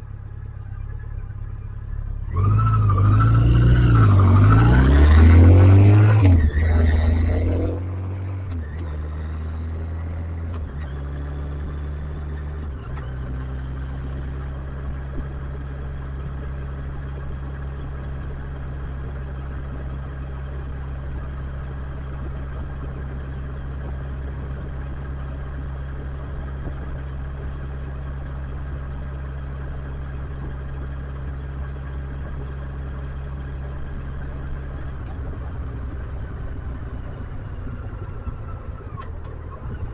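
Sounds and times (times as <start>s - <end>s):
motorcycle engine idling: 0.0s - 2.3s, 11.8s - 39.9s.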